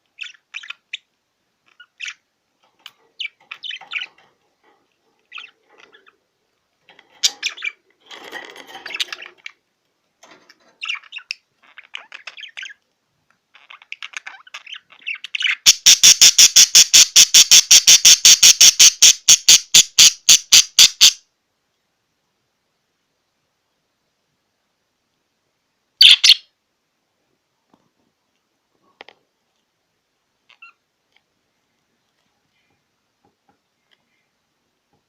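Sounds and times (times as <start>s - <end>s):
budgerigar chattering: 14.7s - 21.2s.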